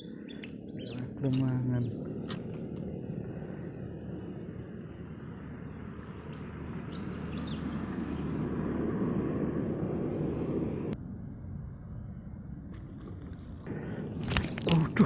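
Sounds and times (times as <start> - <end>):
faint bird chirps: 0.0 - 2.0
wind buffeting microphone: 0.0 - 11.0.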